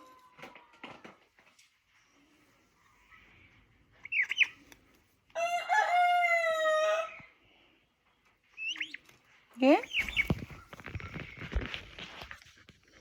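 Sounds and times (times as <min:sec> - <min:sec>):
bird chirp: 0:01.9 - 0:04.7, 0:08.5 - 0:10.9
rooster crowing: 0:05.3 - 0:07.2.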